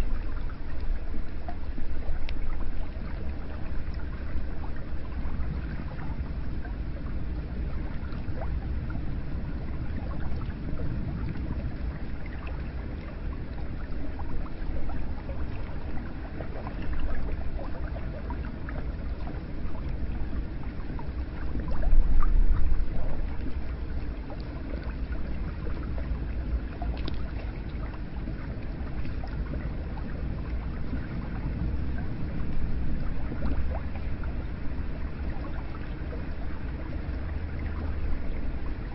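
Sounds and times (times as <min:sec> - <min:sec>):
water flowing and splashing: 0:00.0 - 0:38.9.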